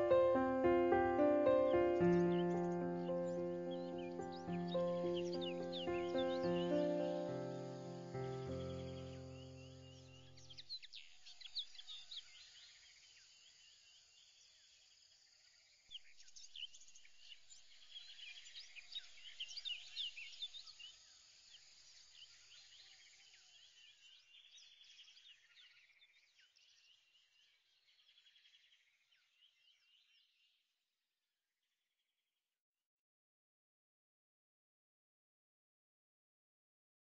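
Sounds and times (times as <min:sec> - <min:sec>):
birds chirping and trilling: 0:00.0 - 0:12.8.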